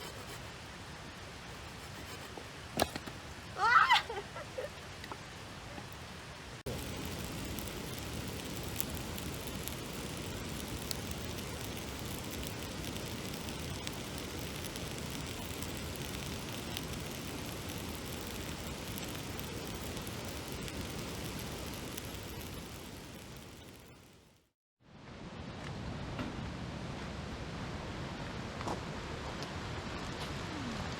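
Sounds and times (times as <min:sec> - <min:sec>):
faint clicks: 0:06.7 - 0:24.1.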